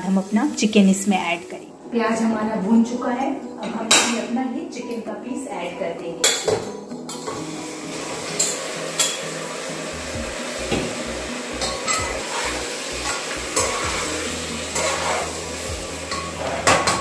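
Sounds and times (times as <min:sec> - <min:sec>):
chicken frying in hot oil: 0:07.8 - 0:17.0
spatula scraping and knocking pot: 0:11.6 - 0:15.4.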